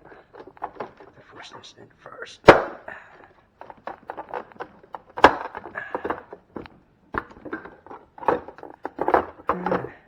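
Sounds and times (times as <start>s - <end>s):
plastic ice maker knocking and clicking: 0.0s - 1.1s, 3.6s - 10.0s.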